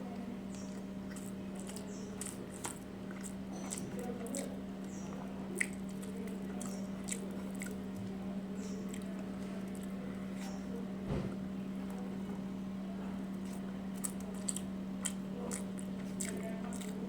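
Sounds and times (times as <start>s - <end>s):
steady low hum: 0.0s - 17.0s
person chewing: 0.5s - 10.6s, 13.3s - 17.0s
wet mouth clicks and smacks: 5.6s - 7.8s, 13.5s - 17.0s.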